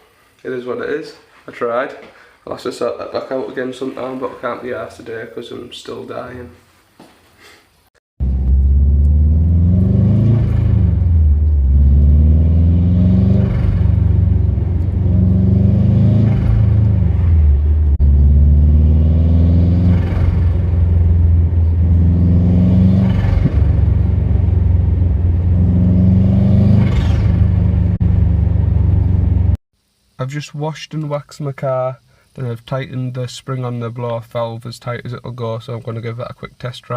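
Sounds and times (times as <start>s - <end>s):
car engine revving: 8.2s - 29.6s.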